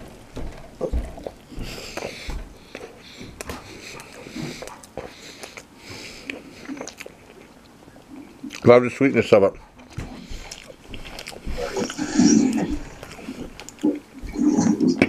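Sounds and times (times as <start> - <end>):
person chewing sandwich: 0.0 - 8.7, 9.6 - 15.0
breaths through the nose: 1.5 - 6.8.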